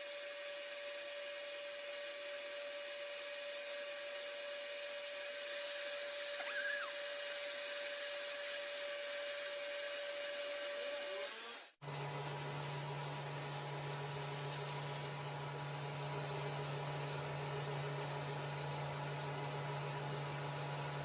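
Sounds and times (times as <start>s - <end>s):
motor whining and hissing: 0.0s - 15.2s.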